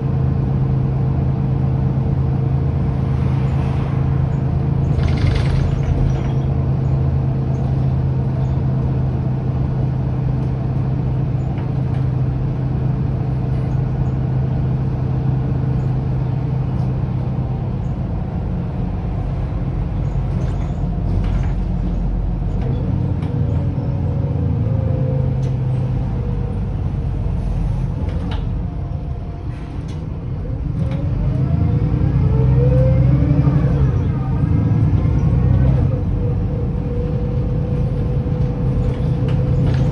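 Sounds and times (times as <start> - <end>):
bus engine hum: 0.0 - 39.9
gearbox whine: 4.8 - 7.0.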